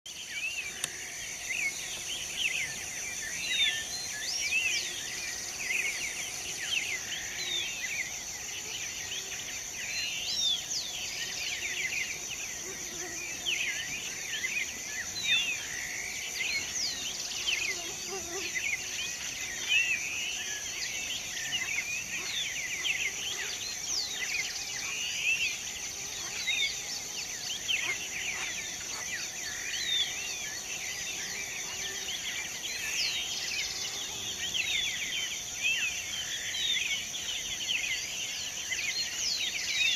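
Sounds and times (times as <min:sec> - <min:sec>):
high-pitched insect drone: 0:00.2 - 0:39.9.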